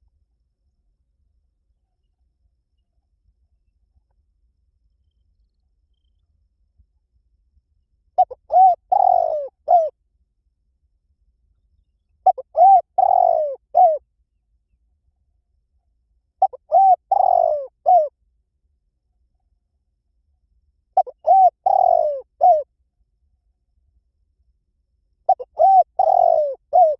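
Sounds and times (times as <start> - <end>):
dove cooing: 8.2 - 10.0, 12.2 - 14.0, 16.4 - 18.1, 21.0 - 22.7, 25.3 - 26.9.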